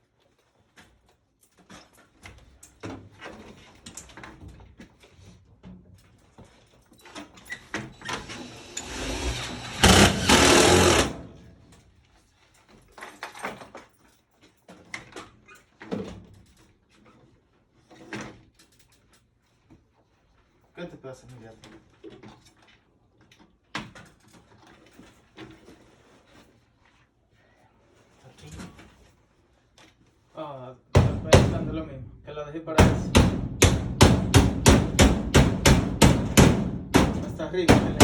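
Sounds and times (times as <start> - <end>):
power tool motor running: 7.9 - 11.5
sheet-metal knocks and clicks: 8.0 - 11.4, 32.8 - 38.0.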